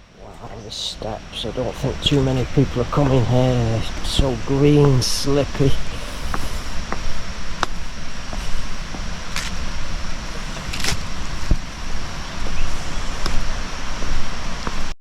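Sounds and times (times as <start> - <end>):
wind buffeting microphone: 0.0 - 14.9
rushing hiss: 0.0 - 15.0.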